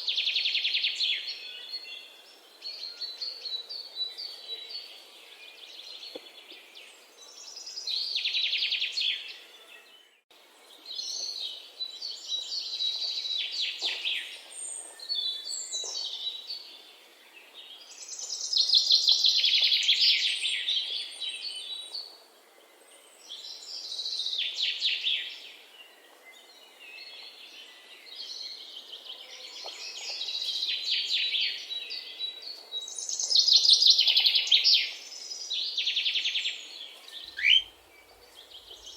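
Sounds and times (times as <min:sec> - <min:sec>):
songbirds singing: 0:00.0 - 0:38.9
faint background hiss: 0:32.6 - 0:38.9.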